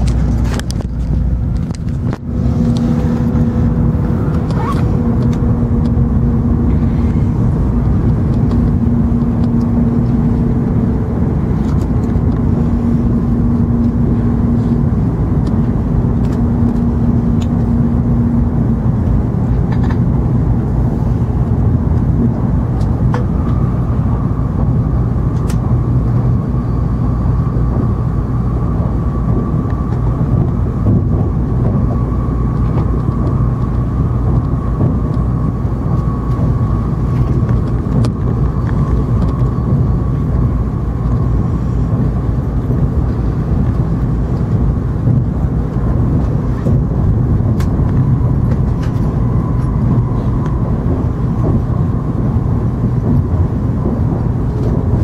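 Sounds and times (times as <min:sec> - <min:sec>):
high steady whine: 0:00.0 - 0:55.0
low train rumble with hum: 0:00.0 - 0:55.0.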